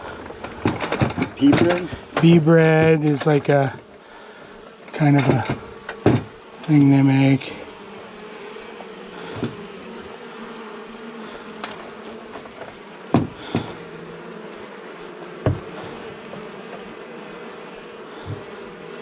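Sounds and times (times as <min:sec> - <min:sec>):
honey bees buzzing: 0:00.0 - 0:19.0
sharp knocks: 0:00.4 - 0:03.6, 0:05.0 - 0:06.4, 0:09.3 - 0:09.7, 0:11.6 - 0:13.9, 0:15.4 - 0:16.9, 0:18.2 - 0:18.5.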